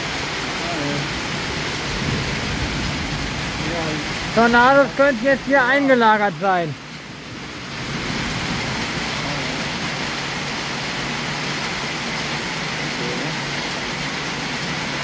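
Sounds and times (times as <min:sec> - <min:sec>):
heavy rain downpour: 0:00.0 - 0:15.0.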